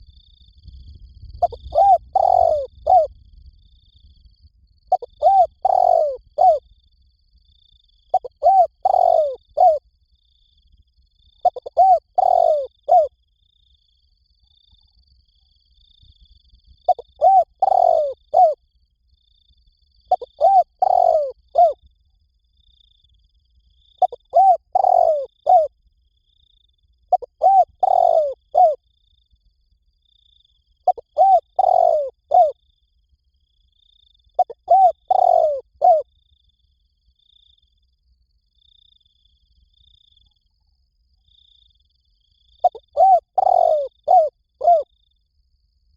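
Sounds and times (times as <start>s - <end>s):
dove cooing: 1.4s - 3.1s, 4.9s - 6.6s, 8.1s - 9.8s, 11.4s - 13.1s, 16.9s - 18.6s, 20.1s - 21.8s, 24.0s - 25.7s, 27.1s - 28.8s, 30.9s - 32.6s, 34.4s - 36.1s, 42.6s - 44.9s.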